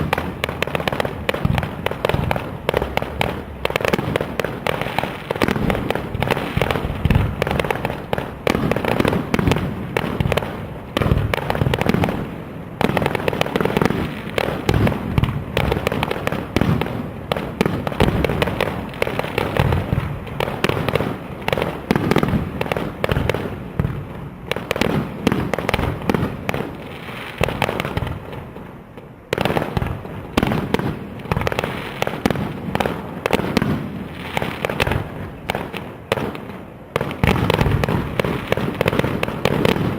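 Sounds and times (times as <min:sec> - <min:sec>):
fireworks bursting: 0:00.0 - 0:39.9
fireworks crackle: 0:00.0 - 0:39.9.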